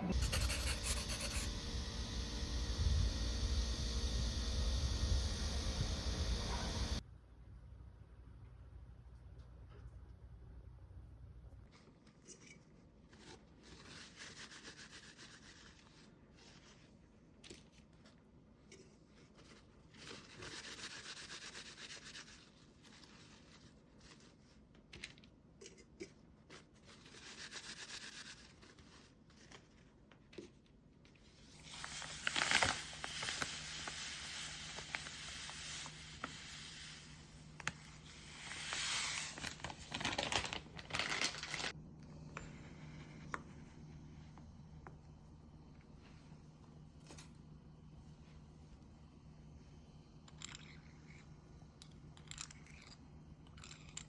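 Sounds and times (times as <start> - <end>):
rubbing and scratching: 0.0 - 1.6, 18.8 - 24.7, 26.5 - 30.5
low steady hum: 0.0 - 11.7, 31.4 - 54.0.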